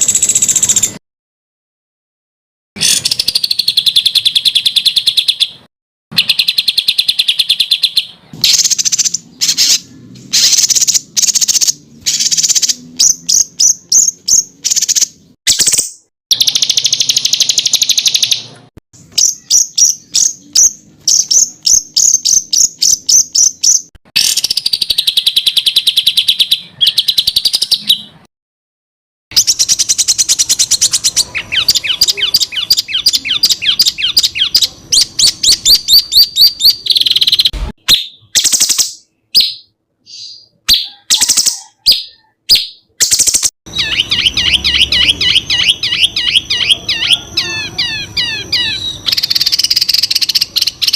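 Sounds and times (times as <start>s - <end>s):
songbirds singing trills: 2.8s - 28.3s, 29.3s - 50.9s.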